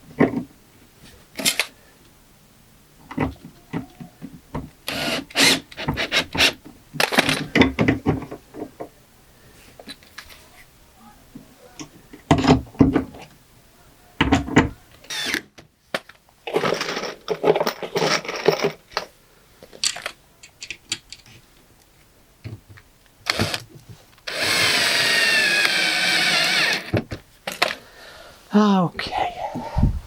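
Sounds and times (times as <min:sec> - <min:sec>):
power drill running: 0:04.9 - 0:06.5, 0:15.1 - 0:15.4, 0:23.3 - 0:23.6, 0:24.3 - 0:26.9.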